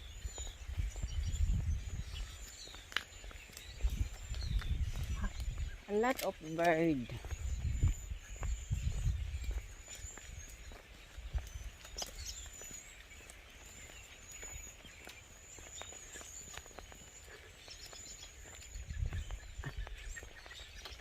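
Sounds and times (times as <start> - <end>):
birds chirping and calling: 0.0 - 21.0
footsteps crunching on ground: 0.0 - 21.0.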